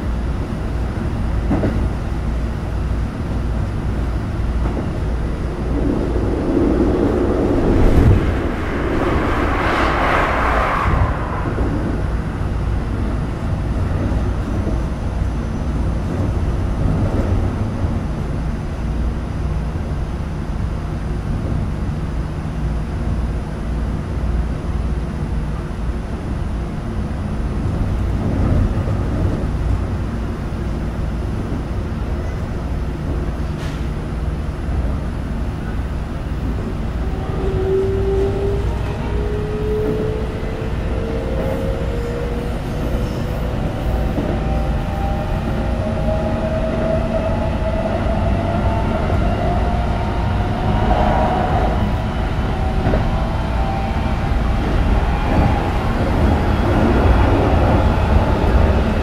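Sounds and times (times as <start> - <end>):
loud rushing noise: 4.0 - 14.0.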